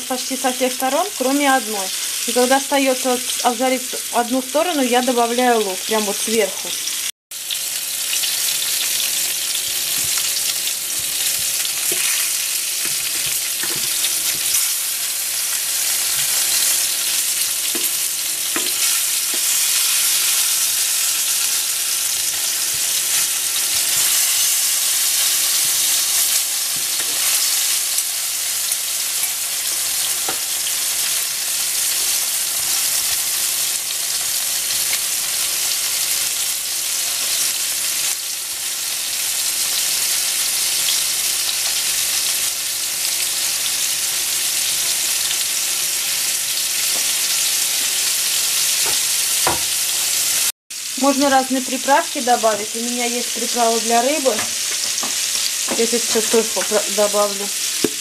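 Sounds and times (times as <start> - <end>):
fish sizzling in oil: 0.0 - 58.0.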